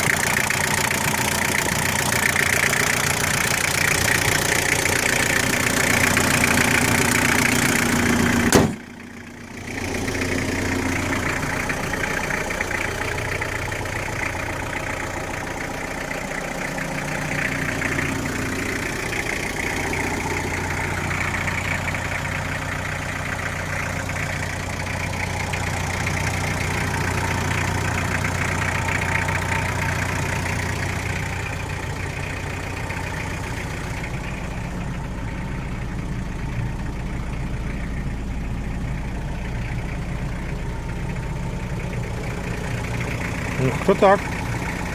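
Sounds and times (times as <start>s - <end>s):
car engine idling: 0.0s - 44.9s.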